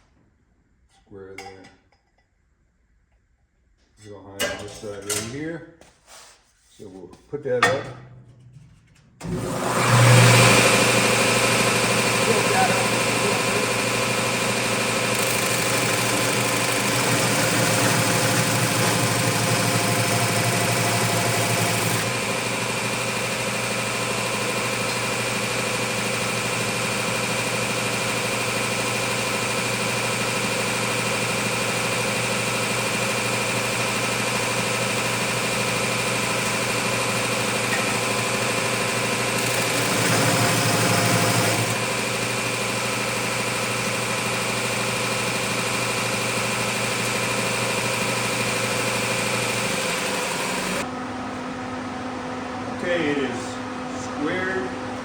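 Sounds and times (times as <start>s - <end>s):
electric motor whining: 9.2s - 50.8s.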